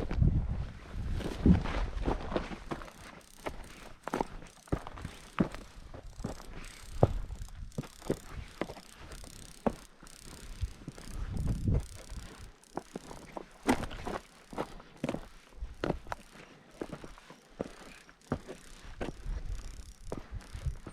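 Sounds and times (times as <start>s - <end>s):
wind rumble on microphone: 0.0s - 2.4s, 10.6s - 12.5s, 19.0s - 20.9s
footsteps crunching on gritty ground: 0.0s - 20.9s.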